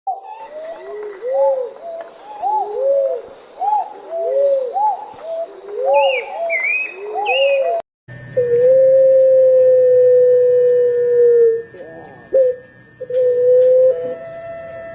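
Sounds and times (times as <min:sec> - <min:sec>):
doves cooing: 0:00.1 - 0:07.8, 0:08.4 - 0:14.9
bird chirping: 0:00.1 - 0:09.2, 0:09.9 - 0:14.9
loud steady tone: 0:07.5 - 0:14.9.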